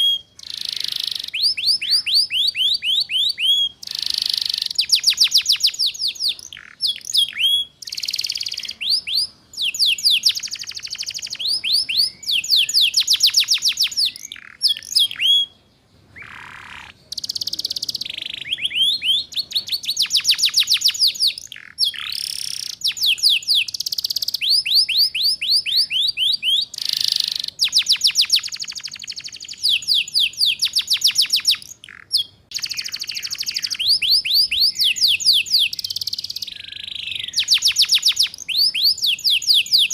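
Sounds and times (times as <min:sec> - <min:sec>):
canary trilling song: 0:00.0 - 0:39.9.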